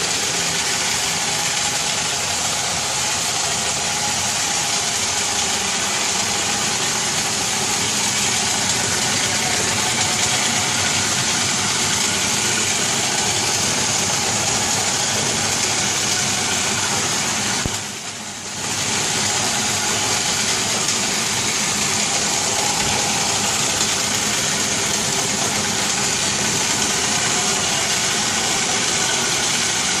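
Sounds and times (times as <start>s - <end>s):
robotic vacuum whirring: 18.7s - 30.0s.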